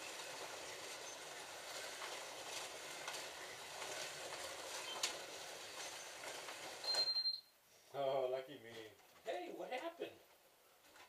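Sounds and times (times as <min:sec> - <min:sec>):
slot cars whirring rattle: 0:00.0 - 0:07.3.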